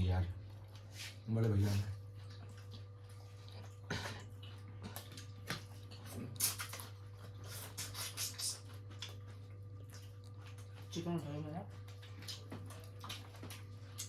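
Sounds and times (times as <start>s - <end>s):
wet chewing: 0.3s - 14.0s
mouth smacks and clicks: 6.2s - 6.9s, 7.6s - 9.2s.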